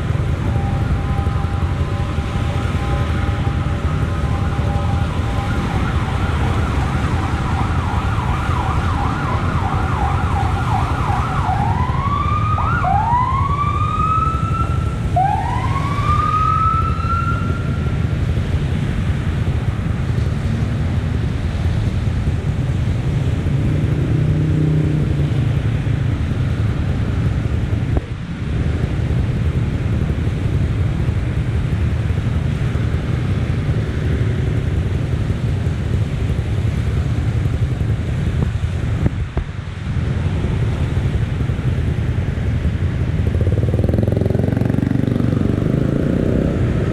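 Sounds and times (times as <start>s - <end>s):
emergency vehicle siren: 0.0s - 20.2s
low rumble of traffic: 0.0s - 46.9s.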